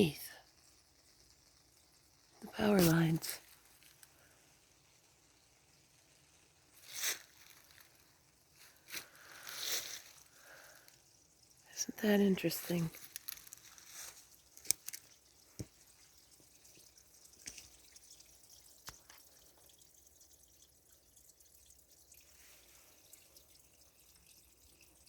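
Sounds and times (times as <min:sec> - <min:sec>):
power line hiss: 0:06.7 - 0:07.9, 0:08.6 - 0:11.0.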